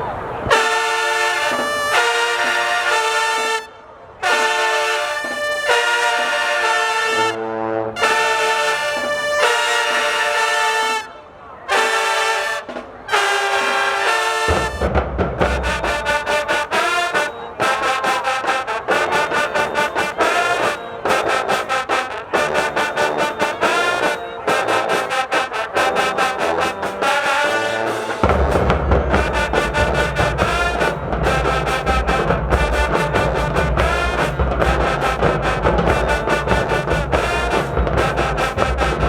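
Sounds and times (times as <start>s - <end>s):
brass chords: 0.0s - 39.0s
horns playing fast tune: 0.4s - 39.0s
marching drums: 0.5s - 3.4s, 4.2s - 7.4s, 8.0s - 10.9s, 11.7s - 39.0s.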